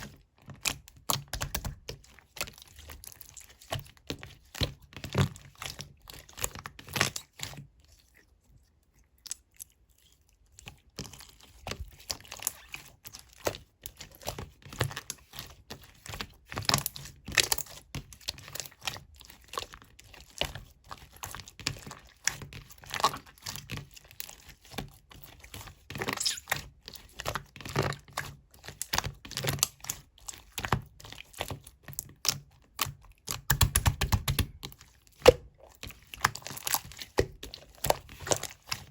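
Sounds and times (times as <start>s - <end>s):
slime crackling and popping: 26.0s - 26.6s.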